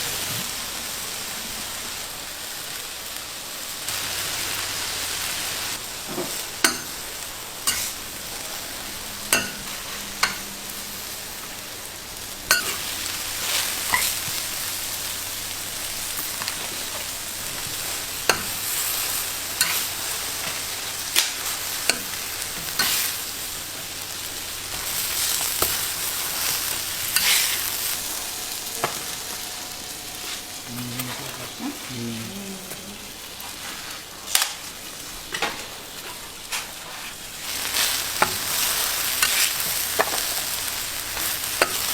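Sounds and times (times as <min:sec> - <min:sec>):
food sizzling: 0:00.0 - 0:41.9
cooking utensils clicking: 0:09.2 - 0:10.6, 0:41.1 - 0:41.9.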